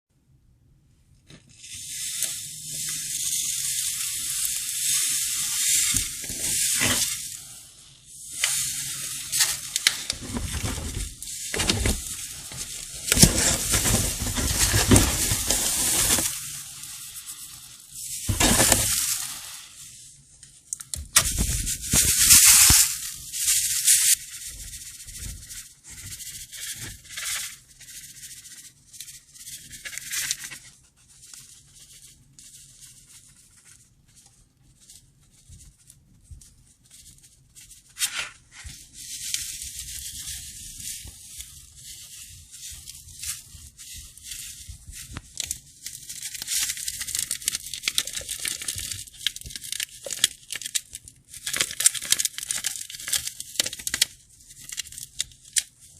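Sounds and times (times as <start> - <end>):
sand pouring hiss: 1.6 - 20.2, 21.8 - 24.2.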